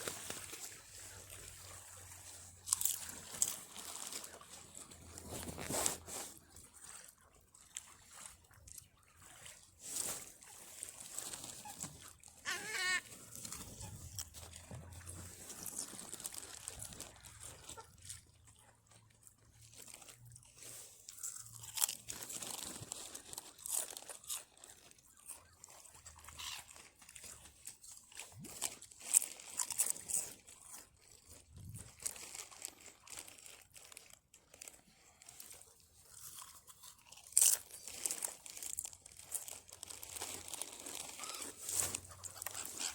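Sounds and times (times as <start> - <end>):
packet crinkling: 0.0 - 1.6, 9.9 - 17.8, 19.7 - 24.9, 26.7 - 42.9
crisps crunching: 0.0 - 7.4, 9.7 - 42.9
wavering bird call: 12.4 - 13.0.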